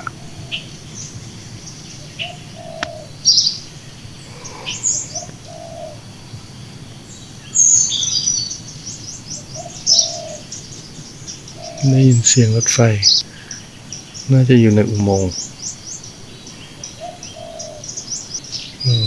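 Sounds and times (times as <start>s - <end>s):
dove cooing: 0.0s - 6.3s, 9.3s - 13.6s, 16.6s - 19.0s
small birds chirping: 0.0s - 19.0s.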